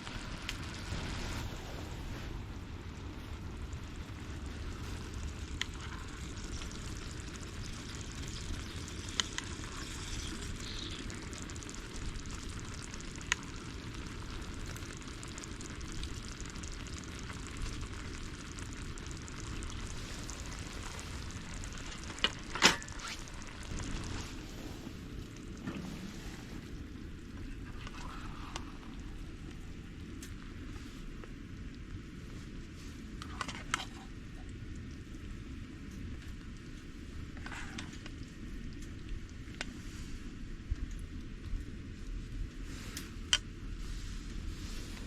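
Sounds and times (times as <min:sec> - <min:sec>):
food sizzling in a pan: 0:03.5 - 0:24.8.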